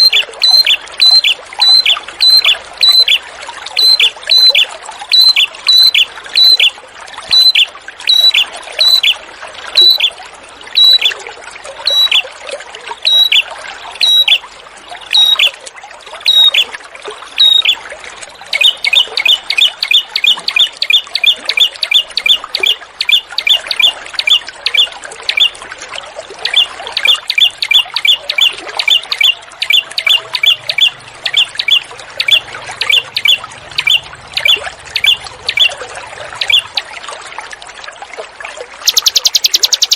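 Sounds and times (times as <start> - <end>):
songbird high calls: 0.0 - 6.7, 7.3 - 9.2, 9.8 - 10.2, 10.8 - 11.2, 11.8 - 12.3, 13.0 - 14.4, 15.1 - 15.6, 16.2 - 16.7, 17.4 - 17.8, 18.5 - 25.6, 26.4 - 36.9, 38.8 - 39.9
water trickling: 0.0 - 39.9.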